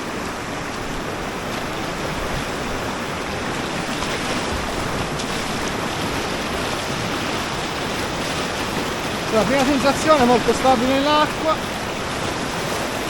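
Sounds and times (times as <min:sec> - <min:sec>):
whitewater river rushing: 0:00.0 - 0:13.0.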